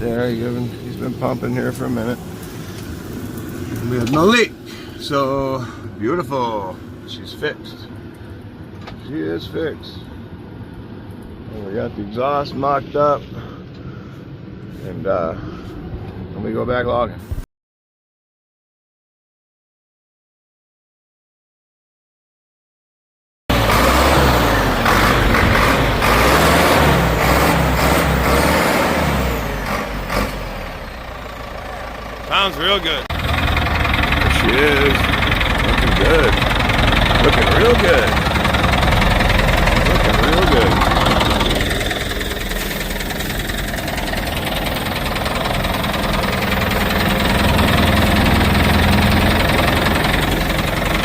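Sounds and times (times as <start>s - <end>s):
diesel engine running loud: 0.0s - 7.0s, 23.5s - 51.0s.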